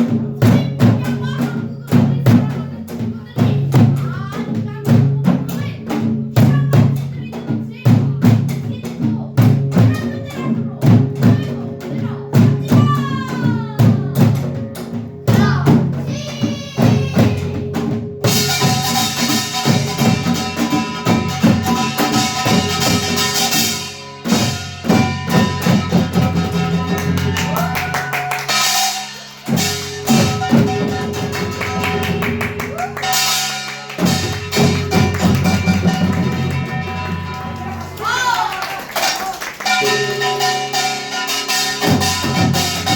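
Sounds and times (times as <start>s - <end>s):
drums in fast rhythm: 0.0s - 42.9s
gongs clanging and ringing: 9.6s - 42.9s.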